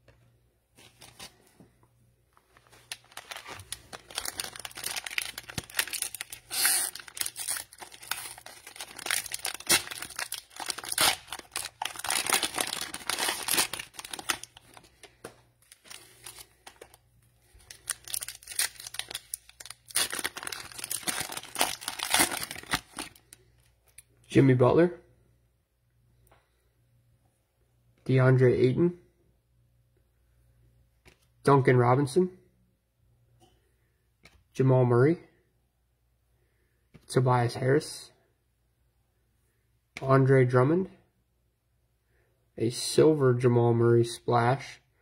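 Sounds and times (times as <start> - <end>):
cellophane tearing and crinkling: 2.6 - 14.9, 15.6 - 17.0, 17.6 - 23.3.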